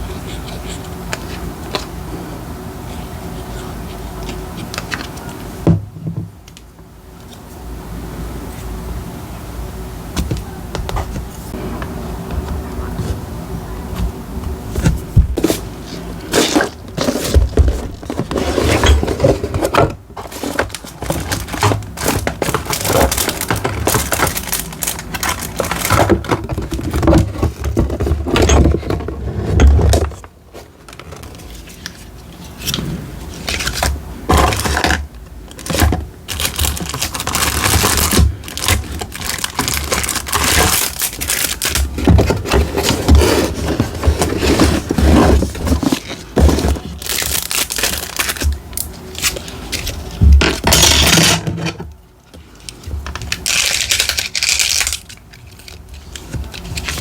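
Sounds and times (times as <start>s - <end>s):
paper crinkling and tearing: 14.7s - 51.7s, 52.5s - 57.0s.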